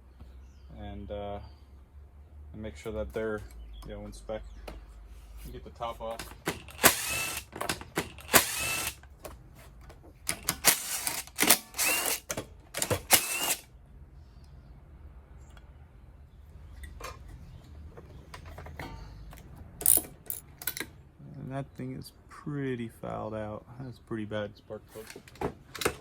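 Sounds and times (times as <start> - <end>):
power driver whirring: 6.5 - 9.0, 10.4 - 13.7
faint clicks of parts handled: 16.7 - 21.0.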